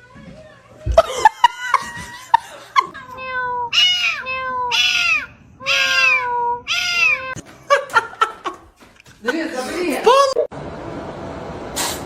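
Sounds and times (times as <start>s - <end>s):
cat meowing: 3.0s - 7.4s.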